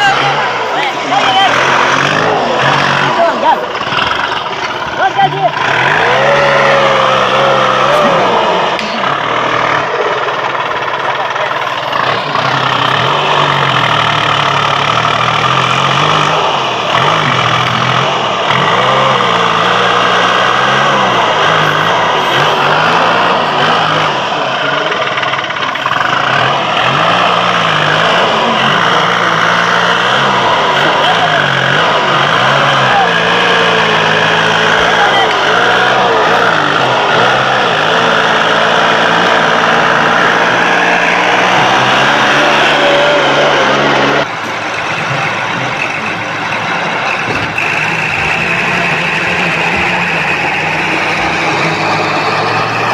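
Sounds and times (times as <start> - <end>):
tractor engine running hard: 0.0 - 52.9.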